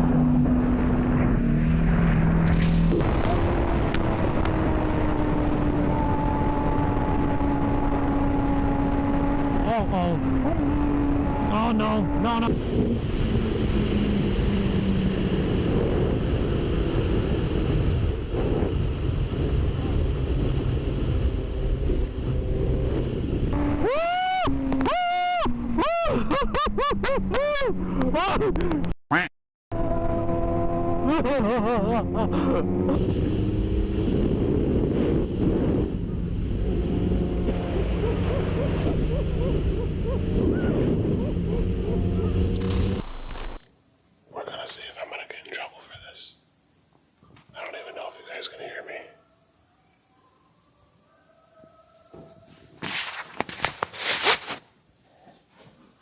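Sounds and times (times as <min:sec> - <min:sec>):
motorcycle engine at speed: 0:00.0 - 0:28.9, 0:29.7 - 0:43.6
warbling tone: 0:02.5 - 0:05.0
wind rush on microphone: 0:12.4 - 0:23.6, 0:33.0 - 0:41.5.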